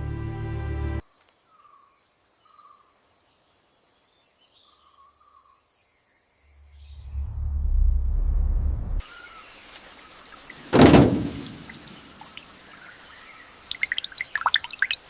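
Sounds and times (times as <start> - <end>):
music: 0.0 - 1.0.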